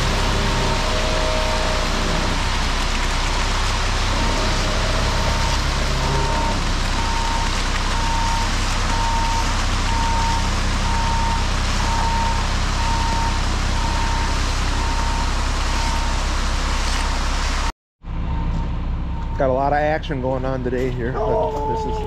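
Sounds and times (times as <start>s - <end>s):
truck engine running: 0.0s - 21.2s
reversing alarm beeping: 4.7s - 16.2s, 18.2s - 19.5s.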